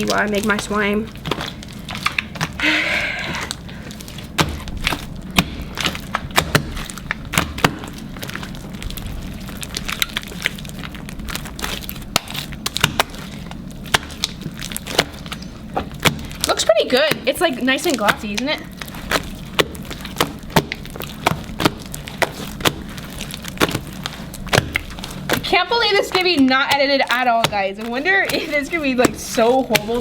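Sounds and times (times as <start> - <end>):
slime clicking and popping: 0.0 - 2.7, 3.4 - 30.0
wet squelch of slime: 0.0 - 30.0.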